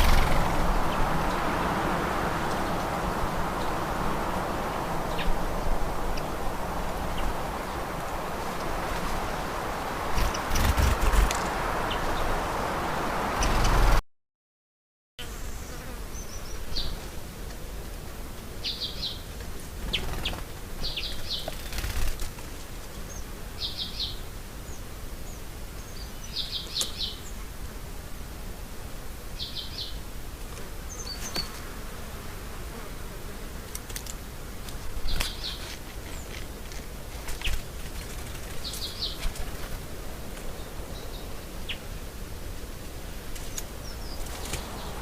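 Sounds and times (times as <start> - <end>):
outdoor background hiss: 0.0 - 14.0, 15.2 - 45.0.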